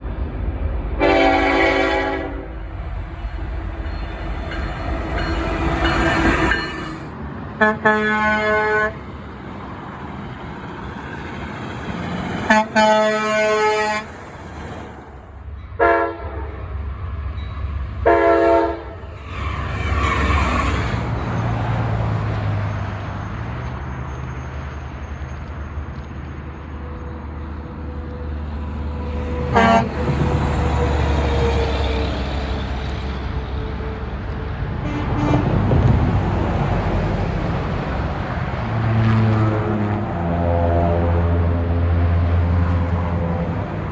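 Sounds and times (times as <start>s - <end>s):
highway traffic noise: 0.0s - 43.9s
truck air horn blasts: 1.0s - 2.6s, 7.6s - 9.0s, 12.5s - 14.2s, 15.8s - 16.5s, 18.0s - 19.0s, 29.0s - 30.5s, 33.5s - 35.7s.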